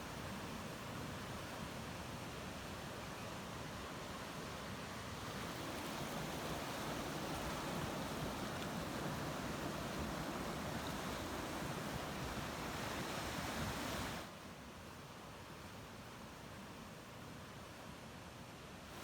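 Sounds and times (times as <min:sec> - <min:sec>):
ocean waves washing: 0:05.2 - 0:14.3.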